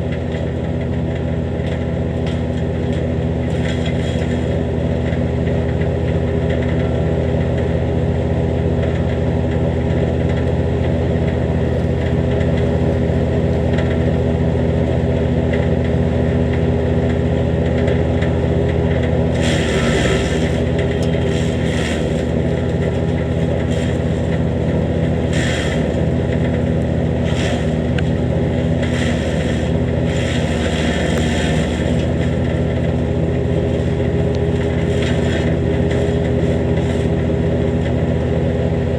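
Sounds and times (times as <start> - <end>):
wood chipper engine running: 0.0 - 38.9
brush crunching in chipper: 18.4 - 38.0.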